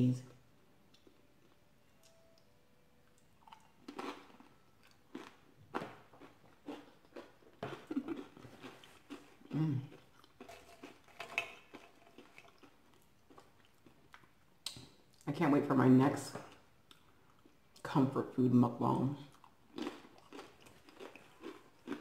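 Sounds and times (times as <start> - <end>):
chewing crunchy corn chips: 3.1 - 15.2, 19.2 - 22.0.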